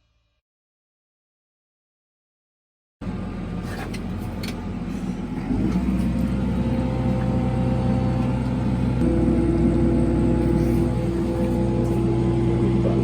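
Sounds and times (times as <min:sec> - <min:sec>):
vehicle engine running: 0:03.0 - 0:13.0.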